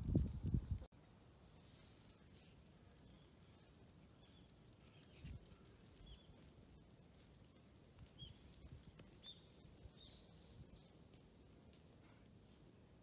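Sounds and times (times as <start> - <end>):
small birds chirping: 1.6 - 11.8.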